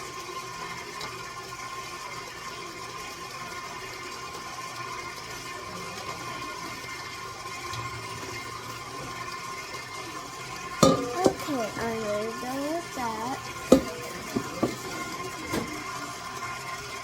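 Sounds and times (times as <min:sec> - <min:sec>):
bowl and utensils clinking: 0:10.8 - 0:15.9
person making wordless sound: 0:11.1 - 0:13.4.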